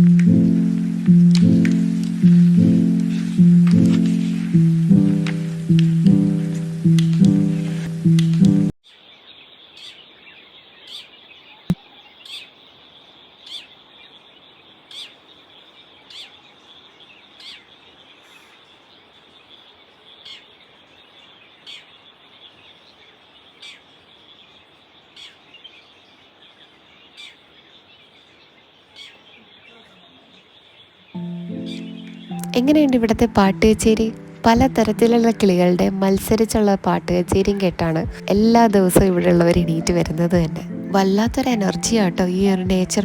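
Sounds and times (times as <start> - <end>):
birds singing: 9.0 - 32.5.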